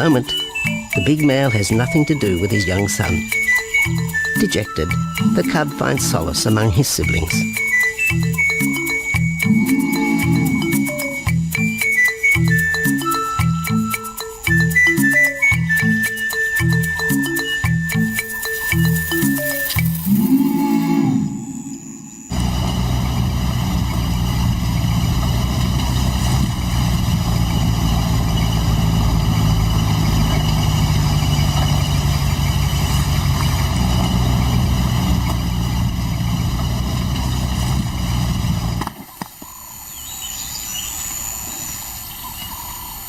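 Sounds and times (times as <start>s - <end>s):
vehicle engine idling: 21.3s - 38.9s.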